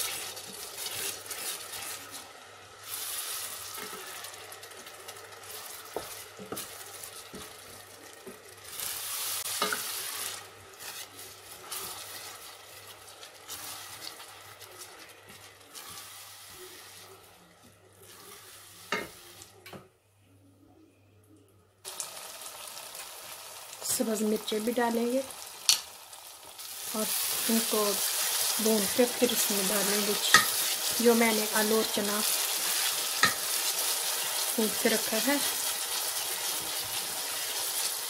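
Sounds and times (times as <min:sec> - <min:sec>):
sauce sizzling in hot oil: 0:00.0 - 0:17.1, 0:21.8 - 0:38.0
wooden spoon stirring: 0:00.0 - 0:19.6.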